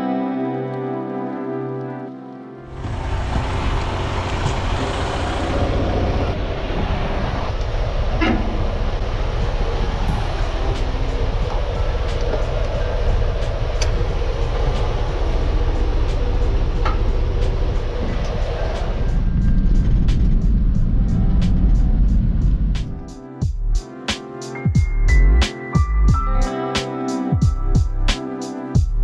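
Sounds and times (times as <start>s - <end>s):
truck engine and road rumble: 2.7s - 23.1s.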